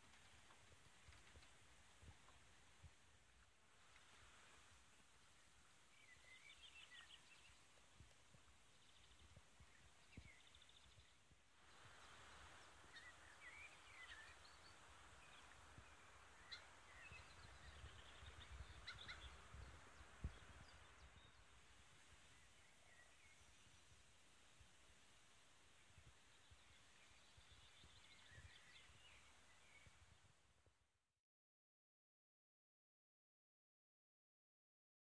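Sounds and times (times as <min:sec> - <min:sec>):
distant birdsong: 0:00.0 - 0:30.5.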